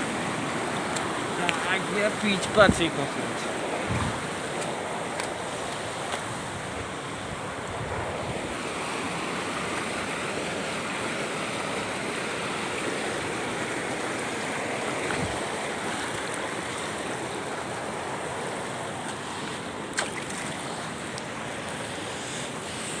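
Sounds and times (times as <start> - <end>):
water rushing: 0.0 - 23.0
wind noise on microphone: 3.6 - 4.5, 6.2 - 8.7, 15.0 - 15.5.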